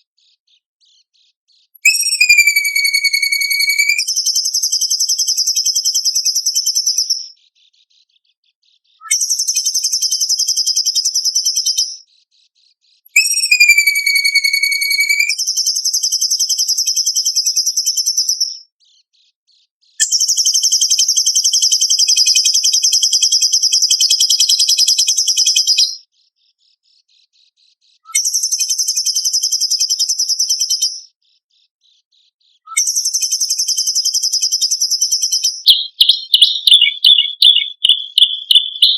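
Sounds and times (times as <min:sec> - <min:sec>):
bird whistle sliding down: 0:01.8 - 0:04.0, 0:13.2 - 0:15.3
bird fast buzzing trills: 0:01.8 - 0:04.2, 0:13.2 - 0:15.4.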